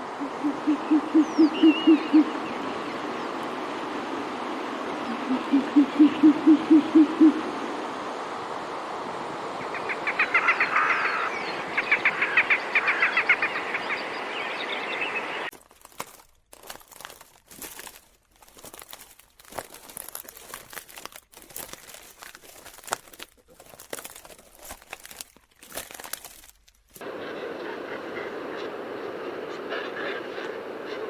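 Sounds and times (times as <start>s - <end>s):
bird hooting: 0.0s - 3.0s, 5.0s - 7.5s, 9.6s - 15.5s, 27.0s - 31.0s
bird chattering trill: 0.2s - 2.3s, 9.6s - 15.5s.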